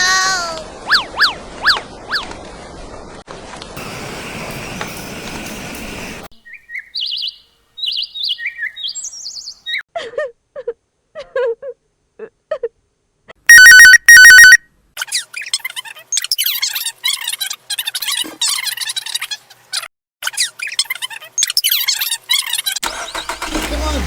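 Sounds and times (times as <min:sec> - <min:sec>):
steady hiss: 0:03.8 - 0:06.3.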